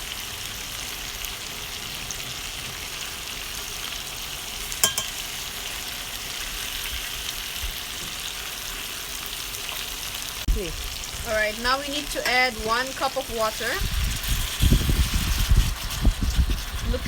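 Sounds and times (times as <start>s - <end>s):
chicken sizzling in a pan: 0.0s - 17.0s
sharp clink: 4.8s - 5.2s.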